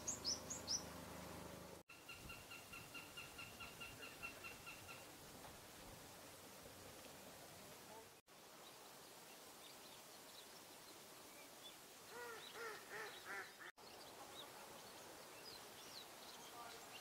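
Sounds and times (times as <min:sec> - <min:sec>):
songbirds chirping: 0:00.0 - 0:17.0
bird calling low: 0:02.0 - 0:05.1, 0:12.1 - 0:13.7.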